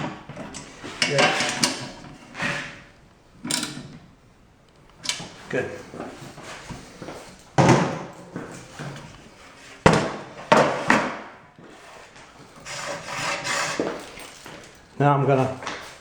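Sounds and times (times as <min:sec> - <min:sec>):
tile cutter scraping: 0:12.6 - 0:14.0.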